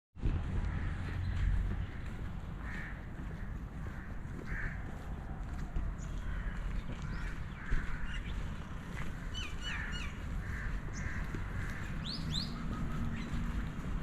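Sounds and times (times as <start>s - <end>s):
low rumble of traffic or wind: 0.2s - 14.0s
harsh bird calls: 0.7s - 14.0s
rising high bird calls: 9.2s - 13.6s.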